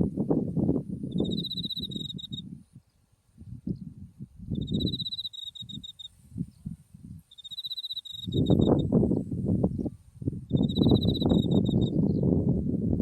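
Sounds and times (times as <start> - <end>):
cricket chirping: 0.6 - 2.6, 4.5 - 12.2.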